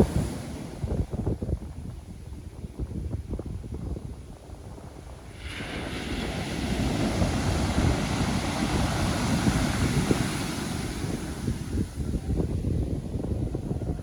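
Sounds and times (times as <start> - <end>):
low rumble of sea: 0.0 - 14.0
wind buffeting microphone: 0.0 - 14.0
wave breaking with rushing hiss: 5.3 - 11.9.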